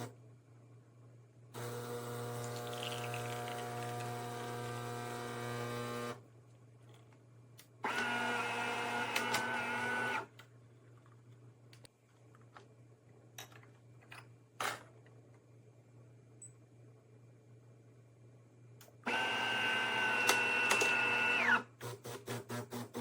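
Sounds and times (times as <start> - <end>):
espresso machine humming: 1.6 - 6.2, 19.1 - 21.5.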